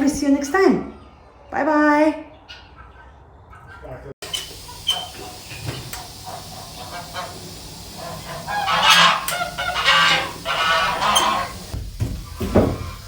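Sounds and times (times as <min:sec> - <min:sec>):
loud animal cries: 0:08.0 - 0:11.7.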